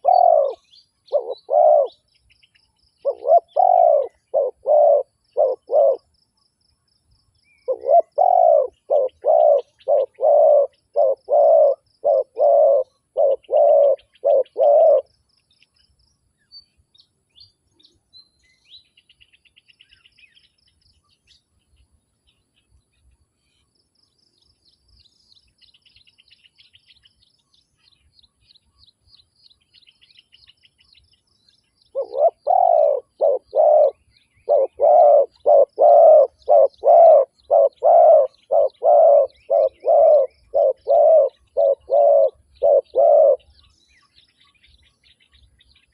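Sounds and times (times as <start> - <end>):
dove cooing: 0.0 - 2.0, 3.0 - 6.1, 7.6 - 15.1, 31.9 - 43.5
small birds chirping: 0.0 - 45.9.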